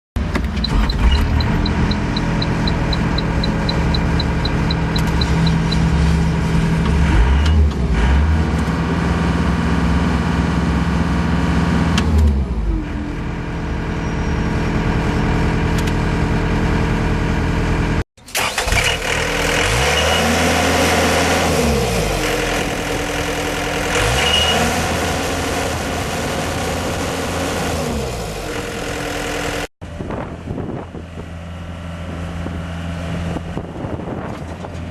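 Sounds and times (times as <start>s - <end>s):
loader engine running: 0.2s - 34.9s
rapid beeping alarm: 0.6s - 6.0s.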